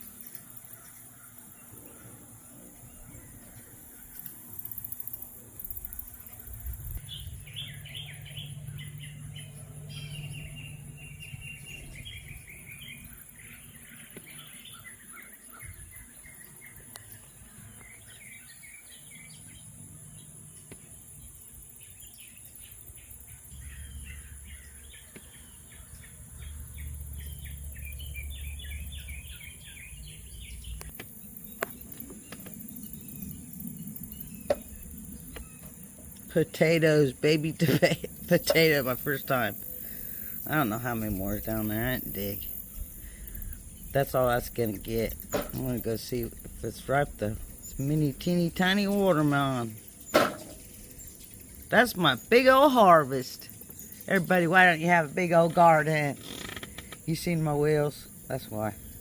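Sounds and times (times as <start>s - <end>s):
wild birds chirping: 0.0s - 59.0s
high-pitched insect buzz: 3.3s - 15.1s, 25.9s - 52.4s.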